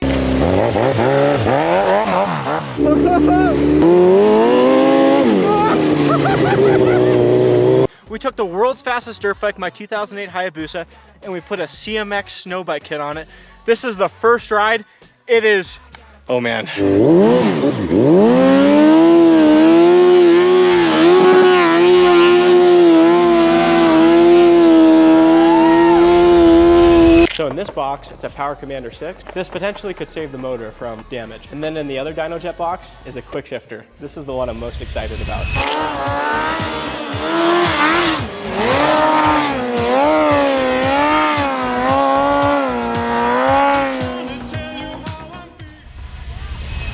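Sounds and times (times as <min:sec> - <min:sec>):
motorcycle engine revving: 0:00.0 - 0:07.9, 0:16.8 - 0:27.4, 0:34.4 - 0:45.3
music with thudding beat: 0:35.9 - 0:45.8.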